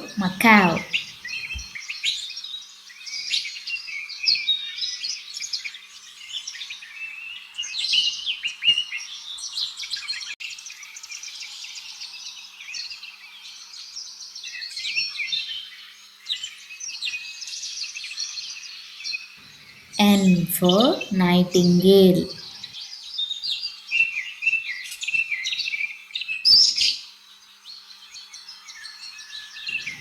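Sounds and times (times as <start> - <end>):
birds chirping: 0.0 - 4.2, 18.4 - 30.0.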